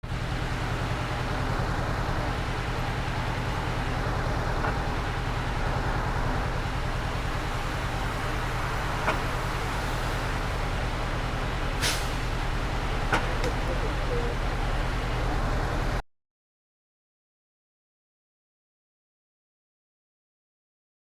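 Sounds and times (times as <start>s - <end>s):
road and traffic noise: 0.0s - 16.0s.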